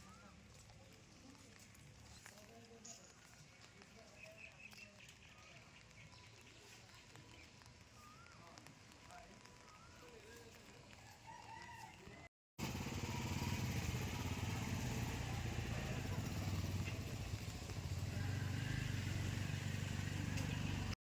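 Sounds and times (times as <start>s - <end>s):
small petrol engine running: 12.6s - 21.0s.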